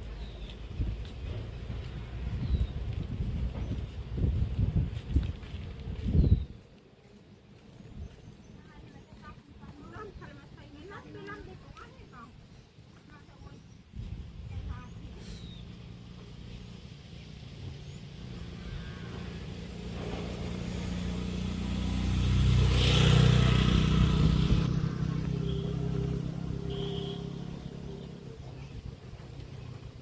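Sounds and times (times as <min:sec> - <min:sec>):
vehicle driving past: 0:15.4 - 0:28.4.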